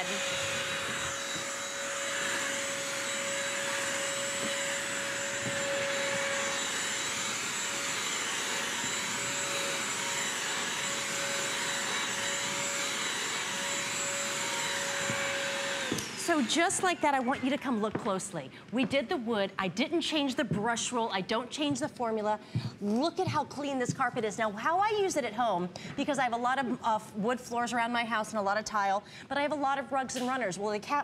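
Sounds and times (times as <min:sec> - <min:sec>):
vacuum motor whine: 0:00.0 - 0:17.4.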